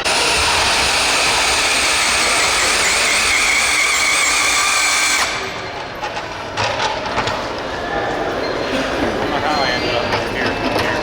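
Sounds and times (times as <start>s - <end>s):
toy vehicle motor whining: 0.0s - 5.6s.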